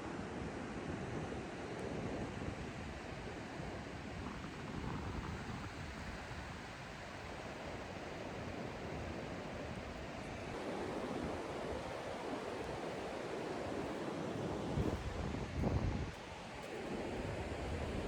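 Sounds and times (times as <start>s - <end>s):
ocean surf washing onto beach: 7.0s - 18.0s.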